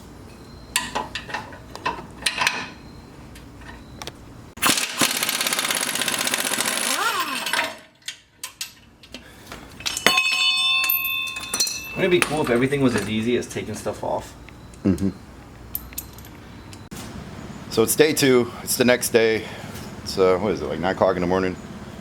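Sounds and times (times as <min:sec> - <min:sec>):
pneumatic impact wrench hammering: 0:04.6 - 0:08.1
metallic clicks of bolts and tools: 0:07.4 - 0:09.2, 0:15.7 - 0:16.8
ringing metal: 0:09.8 - 0:13.3.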